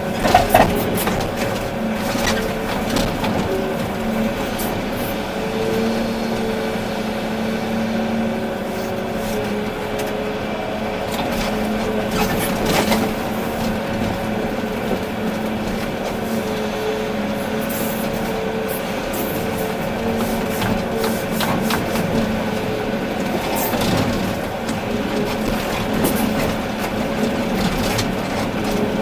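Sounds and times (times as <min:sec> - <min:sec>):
excavator diesel engine running: 0:00.0 - 0:29.0
machine knocks and rattles: 0:00.1 - 0:03.6.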